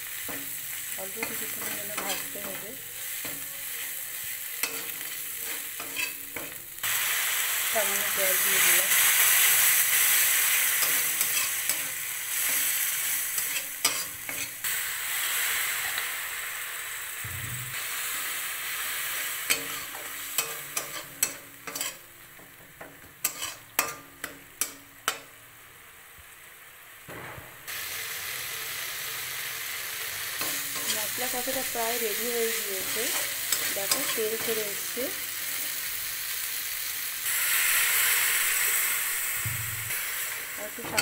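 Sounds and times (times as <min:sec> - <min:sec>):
spice paste sizzling in oil: 0:00.0 - 0:27.1, 0:27.7 - 0:41.0
spatula scraping metal pan: 0:04.6 - 0:06.6, 0:10.8 - 0:12.7, 0:19.5 - 0:22.0, 0:23.2 - 0:24.0.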